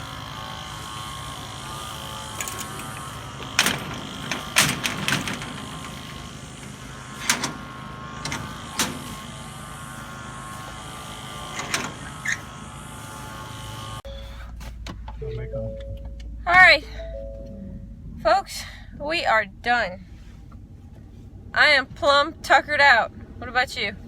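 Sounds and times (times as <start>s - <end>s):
engine hum: 0.0s - 24.0s.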